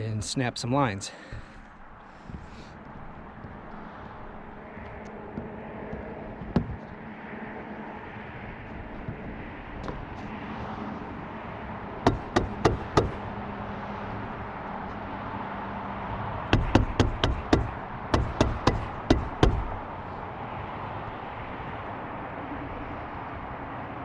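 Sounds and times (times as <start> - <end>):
hammer strikes on roof: 1.3 - 4.4, 5.3 - 7.0, 12.0 - 13.4, 16.5 - 19.9.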